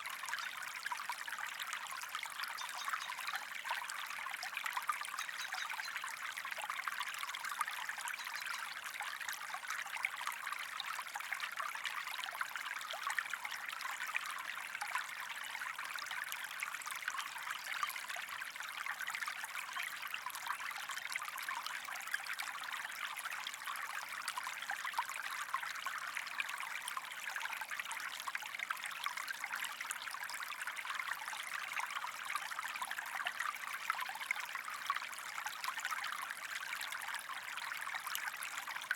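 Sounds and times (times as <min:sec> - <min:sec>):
stream trickling and splashing: 0:00.0 - 0:38.9.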